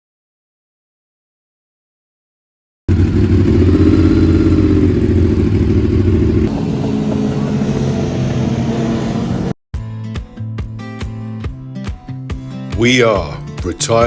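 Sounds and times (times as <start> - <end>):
lower engine note: 2.9 - 9.6
motorcycle engine revving: 2.9 - 9.6.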